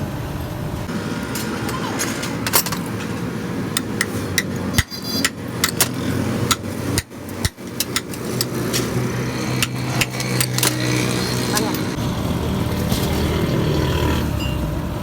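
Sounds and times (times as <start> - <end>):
low mechanical hum: 0.0 - 15.0
hammer striking steel chisel: 3.8 - 12.0.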